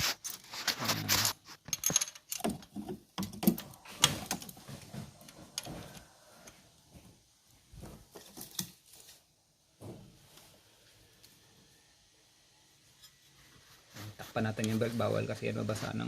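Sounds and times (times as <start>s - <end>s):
metal tools clinking on engine parts: 1.2s - 2.8s.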